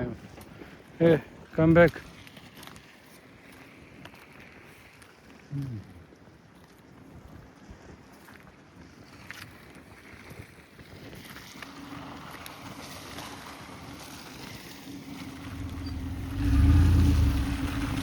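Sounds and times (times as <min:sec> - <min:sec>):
tractor engine humming: 0:13.2 - 0:18.0.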